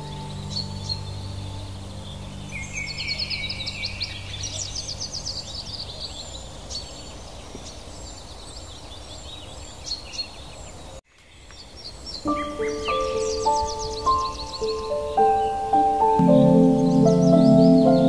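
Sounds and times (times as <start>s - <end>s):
low held music tone: 0.0s - 5.8s, 12.3s - 18.0s
songbirds singing and trilling: 0.0s - 18.0s
steady background hiss: 0.0s - 18.0s.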